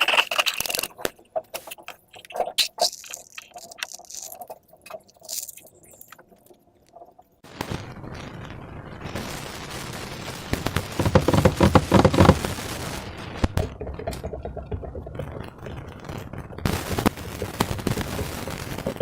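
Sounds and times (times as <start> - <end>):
slime squished by hand: 0.0 - 6.2.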